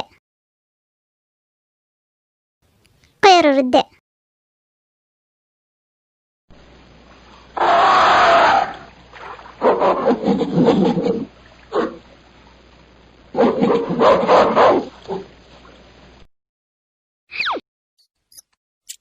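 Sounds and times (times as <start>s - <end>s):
monkey screeching: 7.6s - 8.9s.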